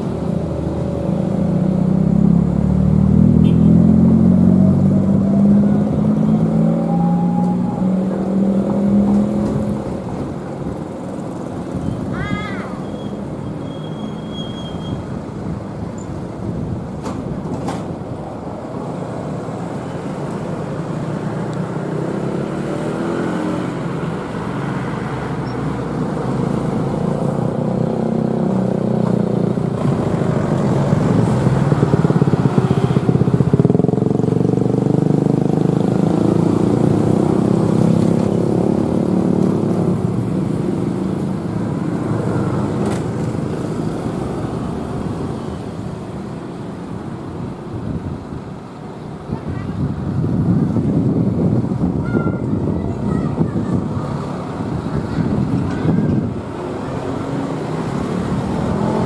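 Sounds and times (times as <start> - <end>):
diesel locomotive engine: 4.4 - 21.3
rumble of train carriages: 16.9 - 18.3, 54.9 - 56.6.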